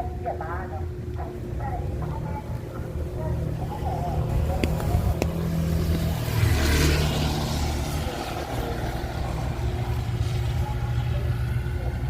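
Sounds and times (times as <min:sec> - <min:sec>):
engine running at low revs: 0:00.0 - 0:12.0
rushing hiss of passing vehicle: 0:05.4 - 0:10.2.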